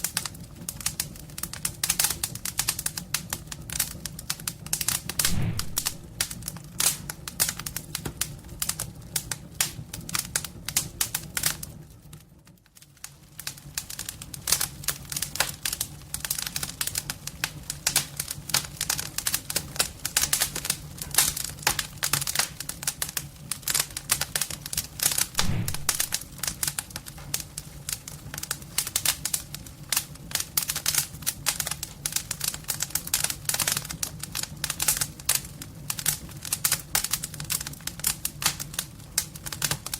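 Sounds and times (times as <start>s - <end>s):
wood fire crackling: 0.0s - 39.9s
steady low hum: 5.2s - 6.1s, 25.4s - 26.2s.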